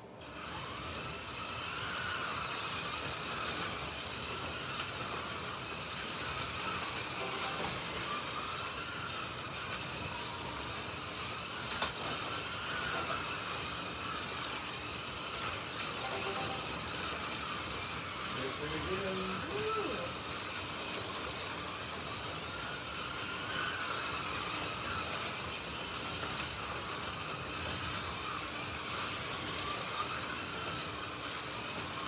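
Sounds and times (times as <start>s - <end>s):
slot car motors whining: 0.0s - 32.0s.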